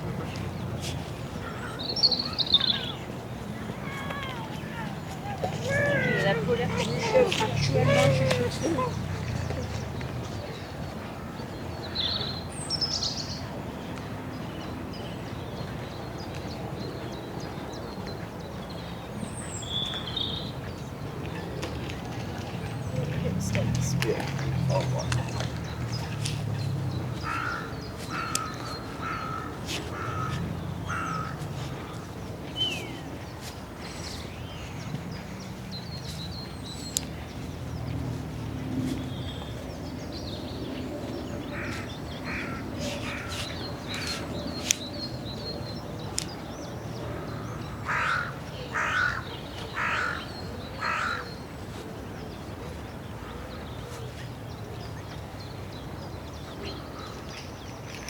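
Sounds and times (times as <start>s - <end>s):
crow cawing: 27.2s - 30.3s, 30.9s - 31.4s, 42.3s - 42.6s, 47.9s - 49.2s, 49.8s - 50.2s, 50.8s - 51.2s.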